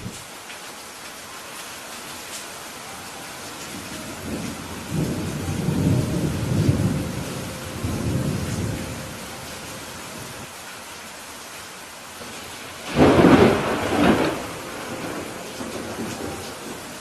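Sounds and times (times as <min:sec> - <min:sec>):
steady rain falling: 0:00.0 - 0:17.0
thunder rolling: 0:03.5 - 0:10.4, 0:12.2 - 0:17.0.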